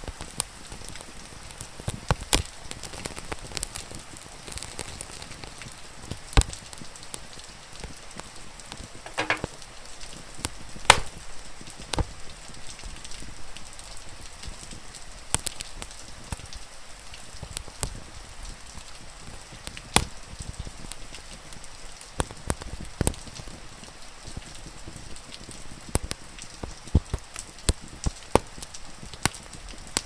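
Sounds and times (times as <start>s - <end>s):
wood fire crackling: 0.0s - 30.0s
fire pops and snaps: 0.1s - 8.0s, 8.7s - 12.1s, 15.3s - 16.6s, 17.4s - 18.0s, 19.2s - 21.0s, 22.2s - 23.2s, 25.3s - 30.0s.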